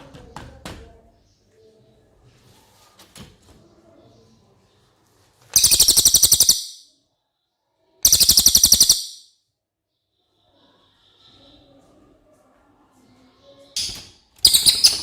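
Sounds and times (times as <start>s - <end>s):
songbird trilling: 5.6s - 6.8s, 8.0s - 9.2s, 14.4s - 15.0s.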